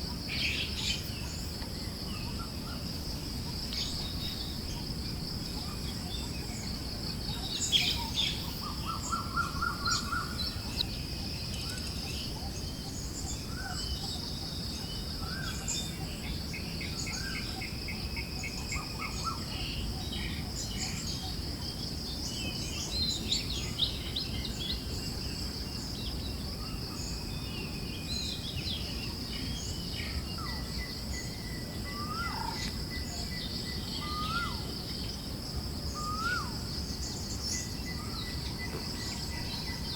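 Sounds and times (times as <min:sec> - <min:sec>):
birds chirping and trilling: 0:00.0 - 0:39.9
high insect drone: 0:00.0 - 0:39.9
low hiss of wind: 0:00.0 - 0:39.9.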